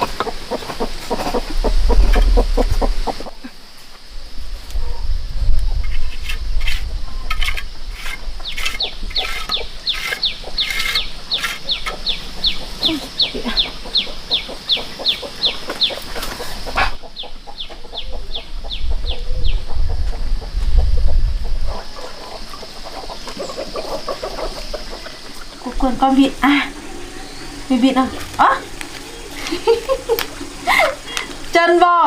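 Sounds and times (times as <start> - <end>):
low rumble: 1.3 - 3.3
chicks peeping: 8.4 - 29.6.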